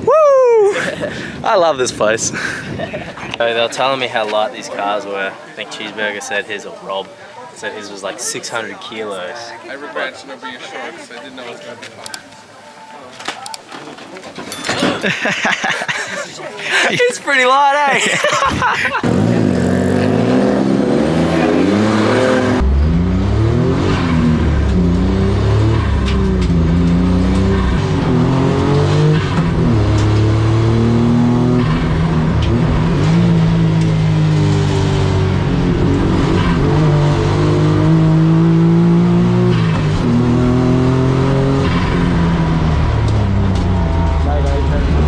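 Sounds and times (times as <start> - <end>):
car engine revving: 19.0 - 45.0.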